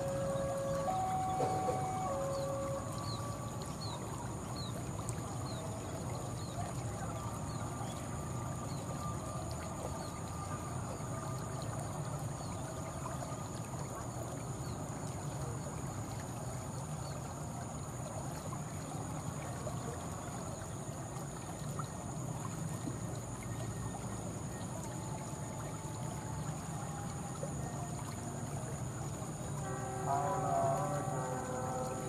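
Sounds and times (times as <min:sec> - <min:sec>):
distant train rumbling past: 0:00.0 - 0:03.0
steady high-pitched tones: 0:00.0 - 0:04.7, 0:29.3 - 0:32.0.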